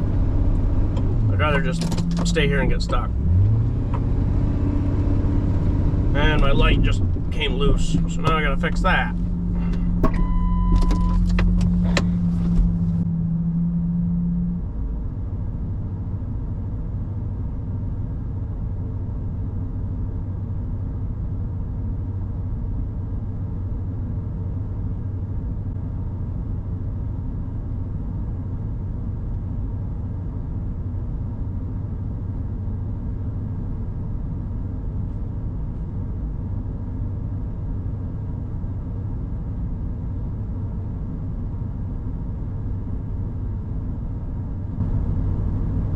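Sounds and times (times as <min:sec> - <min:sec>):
truck engine idling: 0:00.0 - 0:03.6, 0:05.9 - 0:13.1
sharp clicks and knocks: 0:00.9 - 0:03.0, 0:09.6 - 0:12.8.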